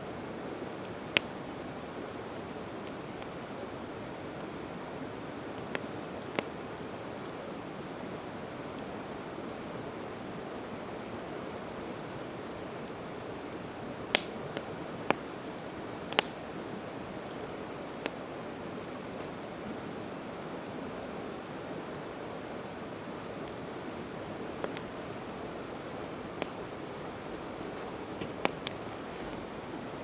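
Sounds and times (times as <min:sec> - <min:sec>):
campfire crackling: 0:10.0 - 0:19.2, 0:23.2 - 0:29.7
cricket chirping: 0:11.6 - 0:19.2.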